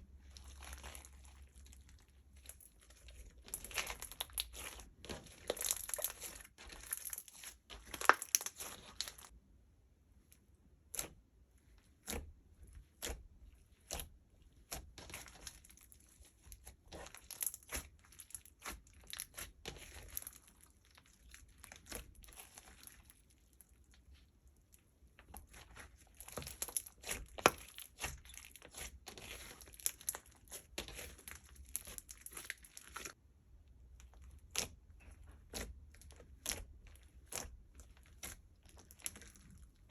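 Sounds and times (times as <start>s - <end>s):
slime crackling and popping: 2.9s - 9.3s.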